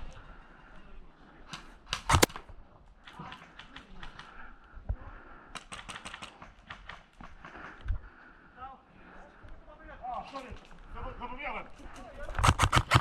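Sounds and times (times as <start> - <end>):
airsoft guns firing bursts: 2.0 - 2.3, 12.4 - 13.0.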